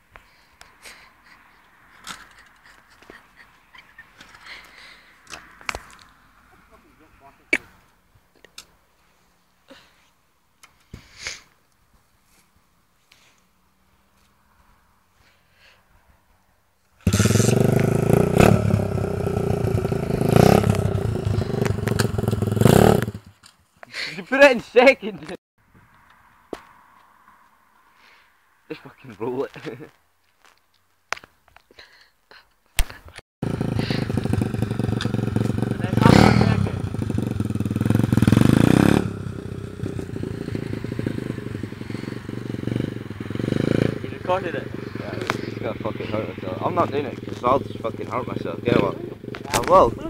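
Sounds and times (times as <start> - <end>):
motorbike engine revving: 17.0 - 23.3, 33.4 - 50.0.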